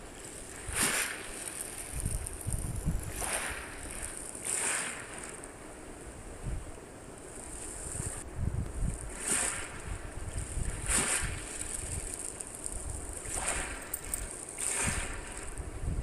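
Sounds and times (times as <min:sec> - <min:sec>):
wind rumbling on microphone: 0:00.0 - 0:05.3, 0:06.0 - 0:16.0
steady high hiss: 0:00.0 - 0:10.8.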